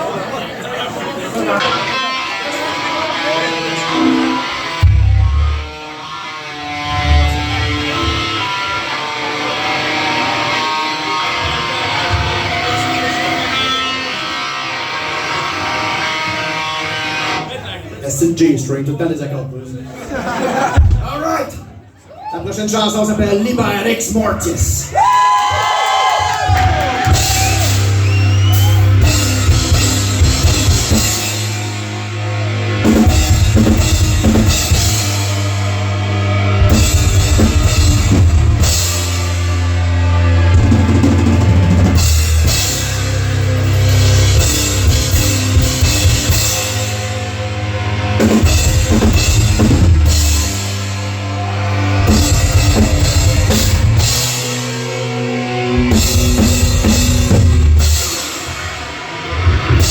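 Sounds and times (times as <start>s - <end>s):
heavy metal band playing live: 1.5s - 17.6s, 26.2s - 59.9s
drum kit and cymbals: 26.4s - 59.9s.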